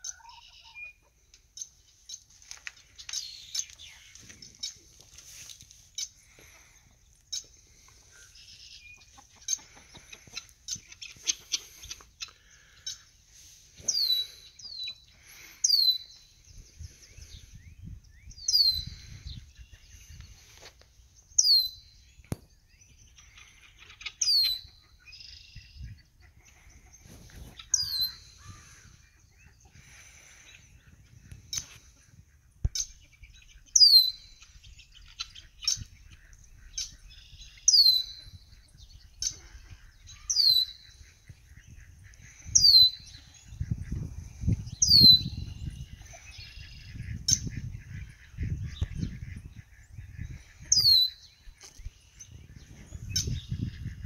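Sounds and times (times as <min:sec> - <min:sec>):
faint bird chirping: 0:00.0 - 0:05.0.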